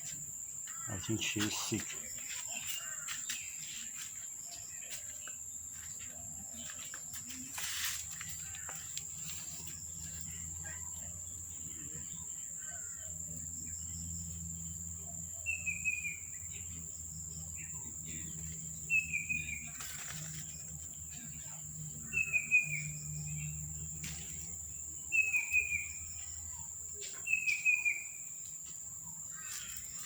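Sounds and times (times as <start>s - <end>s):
bird chirp: 0.0s - 30.0s
high insect drone: 0.0s - 30.0s
rustling: 19.6s - 20.7s.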